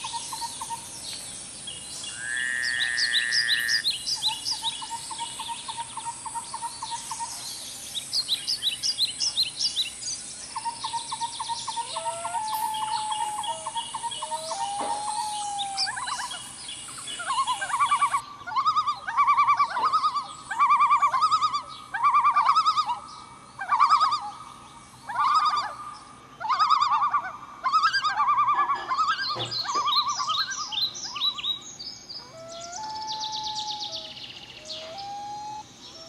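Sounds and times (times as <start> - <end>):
birds singing and calling: 0.0 - 36.0
steady high hiss: 0.0 - 36.0.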